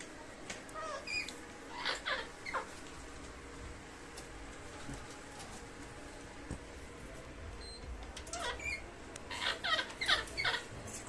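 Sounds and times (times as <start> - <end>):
baby parrot squeaky calls: 0.8 - 2.7, 8.3 - 10.7.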